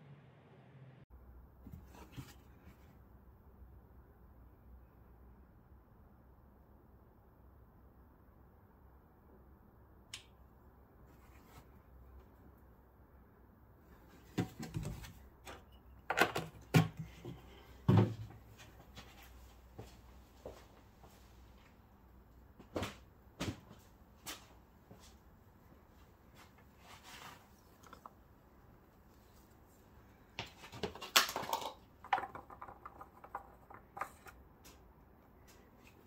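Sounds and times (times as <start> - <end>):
objects knocking and clunking: 14.1 - 18.5, 30.4 - 34.9.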